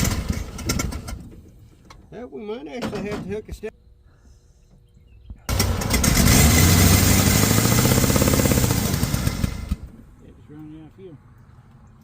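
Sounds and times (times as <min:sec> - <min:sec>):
car engine starting and running: 0:00.0 - 0:01.4, 0:05.5 - 0:10.2.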